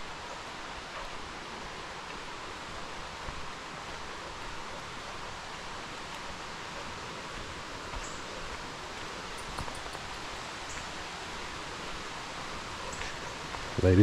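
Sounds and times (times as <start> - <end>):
mountain stream rushing: 0.0 - 14.0
faint high ticks: 9.3 - 10.9.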